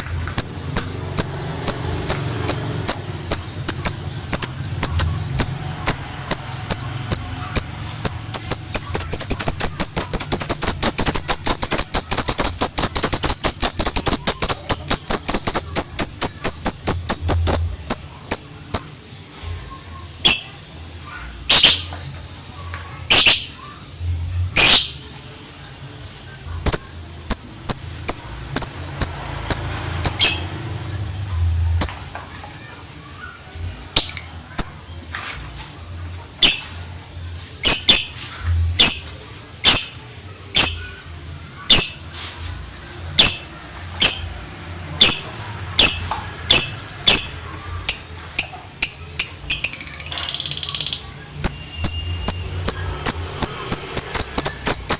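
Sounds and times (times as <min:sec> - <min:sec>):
lovebird high chirps: 0:00.0 - 0:19.0, 0:21.5 - 0:22.0, 0:23.1 - 0:23.7, 0:26.6 - 0:30.5, 0:34.0 - 0:35.2, 0:37.6 - 0:38.2, 0:45.0 - 0:54.9.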